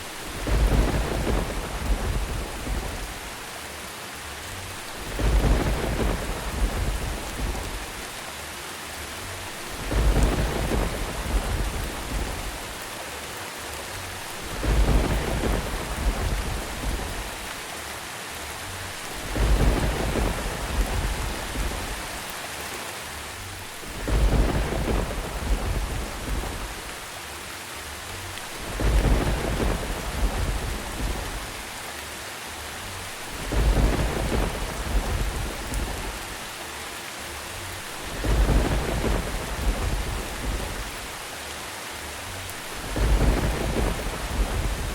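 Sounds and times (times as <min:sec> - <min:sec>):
steady rain: 0:00.0 - 0:44.9
thunder rolling: 0:00.2 - 0:03.3, 0:05.0 - 0:08.0, 0:09.7 - 0:12.8, 0:14.4 - 0:17.4, 0:19.1 - 0:22.3, 0:23.8 - 0:27.0, 0:28.6 - 0:31.6, 0:33.2 - 0:36.4, 0:38.0 - 0:41.2, 0:42.7 - 0:44.9.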